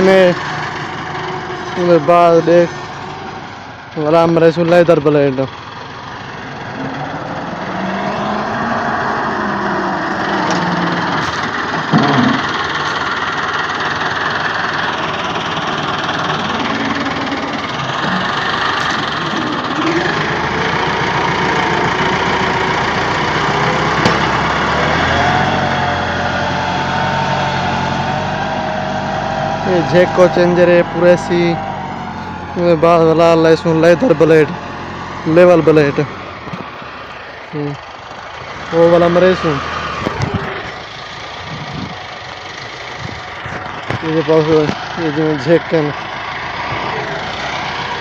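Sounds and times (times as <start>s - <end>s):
tractor diesel engine under load: 0.0s - 48.0s
metal clunk: 11.2s - 12.5s.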